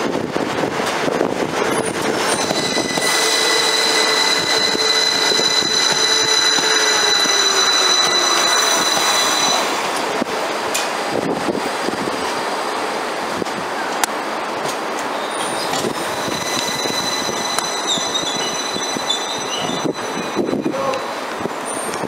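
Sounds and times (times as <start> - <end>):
train rumble: 0.0 - 22.0
train wheels squealing: 1.7 - 10.1, 15.2 - 22.0.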